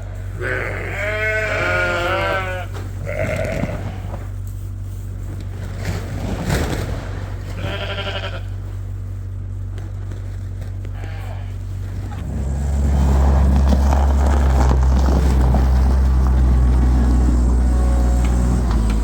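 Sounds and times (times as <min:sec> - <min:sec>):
steady low hum: 0:00.0 - 0:19.0
sheep bleating: 0:00.2 - 0:04.3, 0:07.5 - 0:08.7, 0:10.8 - 0:12.2.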